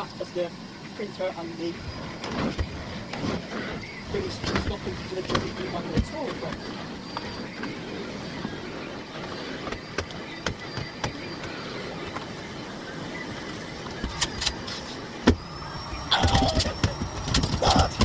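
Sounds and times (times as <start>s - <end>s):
vacuum cleaner motor whine: 0.0s - 18.0s
scattered clicks: 13.4s - 15.0s, 16.1s - 18.0s.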